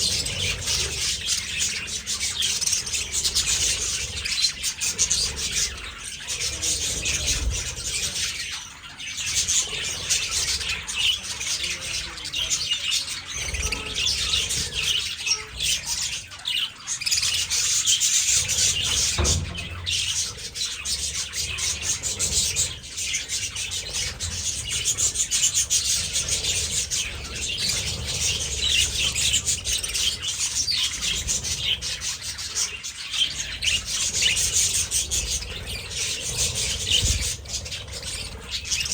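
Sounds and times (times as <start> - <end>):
budgerigars chattering and chirping: 0.0 - 38.9
low knocks: 18.8 - 20.4.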